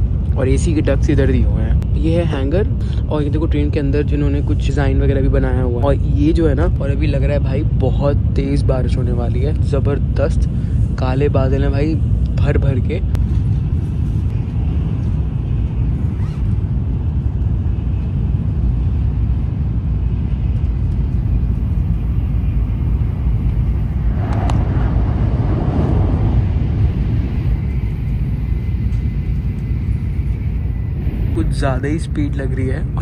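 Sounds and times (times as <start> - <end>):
high-speed train rumble: 0.0 - 33.0
hissy noise: 21.3 - 33.0.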